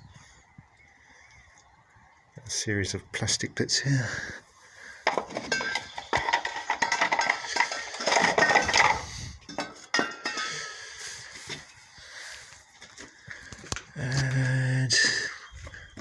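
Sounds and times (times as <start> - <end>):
plastic parts clattering: 5.0 - 10.8.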